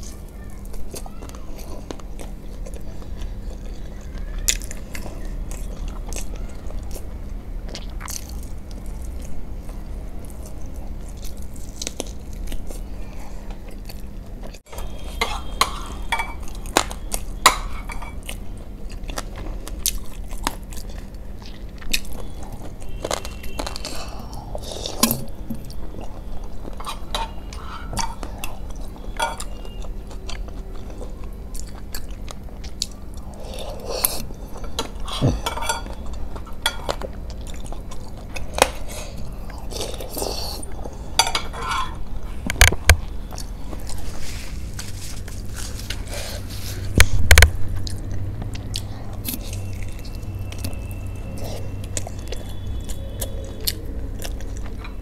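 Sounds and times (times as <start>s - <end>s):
faint steady hum: 0.0s - 55.0s
wet chewing and crunching: 0.0s - 55.0s.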